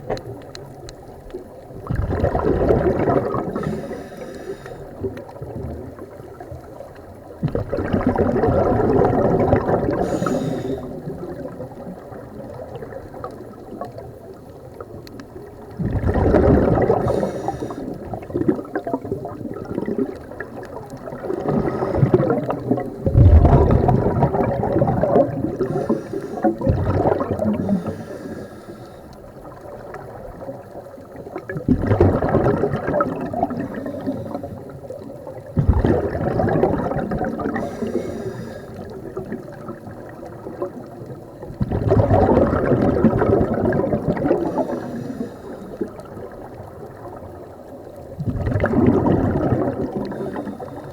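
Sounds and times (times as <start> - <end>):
underwater exhaled air bubbling: 0.0 - 50.9.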